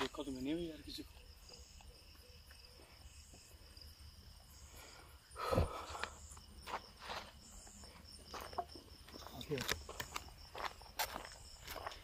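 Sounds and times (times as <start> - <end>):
crickets chirping: 0.0 - 12.0
footsteps on road: 6.0 - 12.0.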